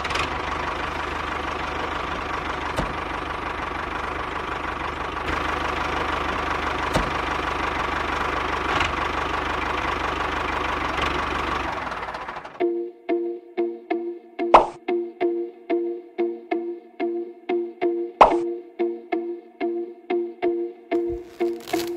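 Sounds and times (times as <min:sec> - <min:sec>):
constant whine: 0:00.0 - 0:12.9.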